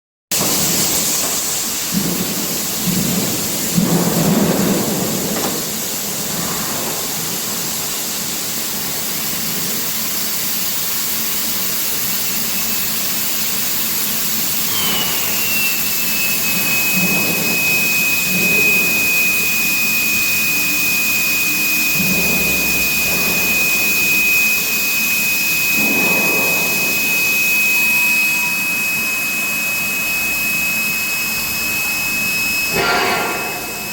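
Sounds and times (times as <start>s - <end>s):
machinery hissing: 0.3s - 33.9s
high-pitched whine: 12.7s - 33.9s.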